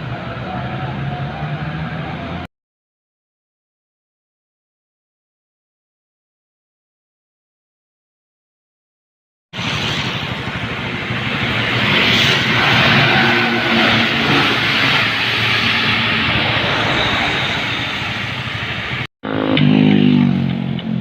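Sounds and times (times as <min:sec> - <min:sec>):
wind and road noise: 0:00.0 - 0:02.5, 0:09.6 - 0:21.0
low truck engine drone: 0:09.6 - 0:21.0.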